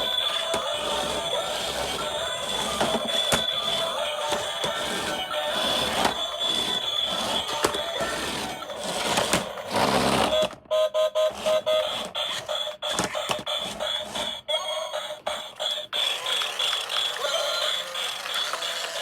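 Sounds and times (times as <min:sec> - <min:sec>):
electronic toy beeps: 0:10.1 - 0:18.8.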